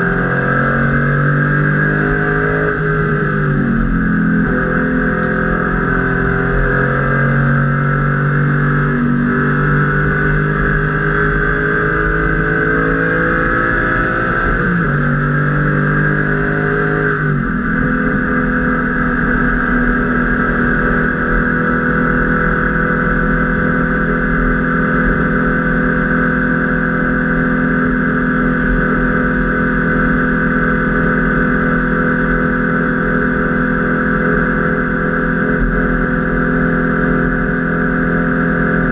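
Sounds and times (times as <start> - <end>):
car engine at full throttle: 0.0 - 38.9.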